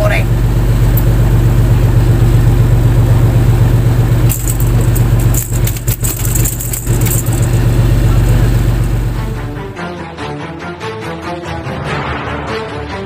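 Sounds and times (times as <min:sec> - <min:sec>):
boat engine running: 0:00.0 - 0:09.8
sharp clicks and rattles: 0:04.0 - 0:09.4.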